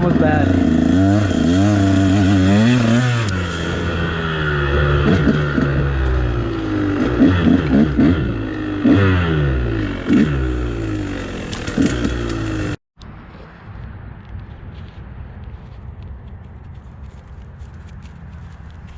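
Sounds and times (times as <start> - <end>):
dirt bike engine revving: 0.0 - 12.8.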